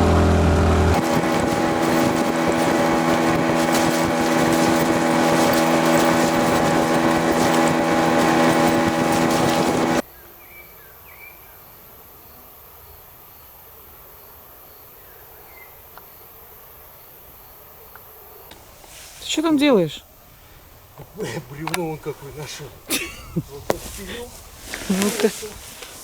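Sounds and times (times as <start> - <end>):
outboard motor running: 0.0 - 10.0
wind buffeting microphone: 0.0 - 10.0, 20.3 - 26.0.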